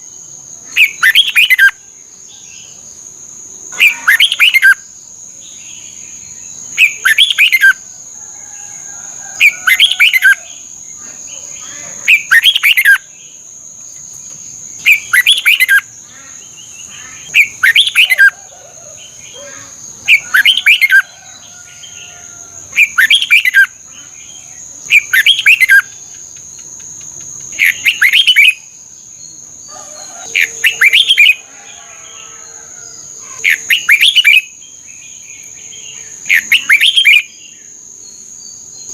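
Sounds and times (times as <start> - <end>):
bulbul singing: 0.8 - 2.9, 5.5 - 7.8, 9.4 - 31.4, 33.3 - 37.6.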